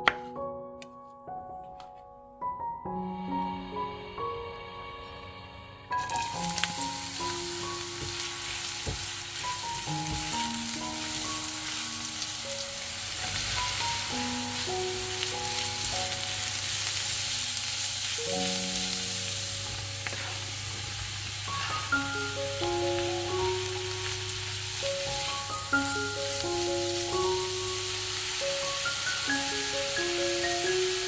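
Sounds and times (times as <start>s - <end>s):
slow background music: 0.0s - 31.0s
vegetables sizzling in frying pan: 6.0s - 31.0s
spatula stirring: 19.6s - 22.0s.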